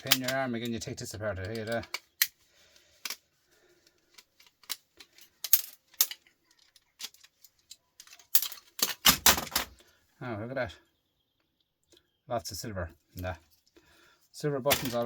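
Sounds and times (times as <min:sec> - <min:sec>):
metal parts clicking and clinking: 0:00.0 - 0:03.2, 0:03.9 - 0:09.8, 0:14.7 - 0:15.0
knocks and rattles: 0:08.0 - 0:09.7.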